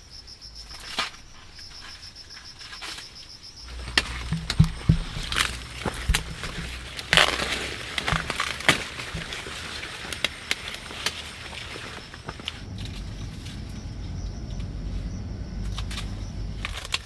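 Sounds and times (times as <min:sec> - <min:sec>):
leaves rustling: 0:00.8 - 0:17.0
dry plant stalks snapping: 0:03.7 - 0:13.5, 0:15.7 - 0:17.0.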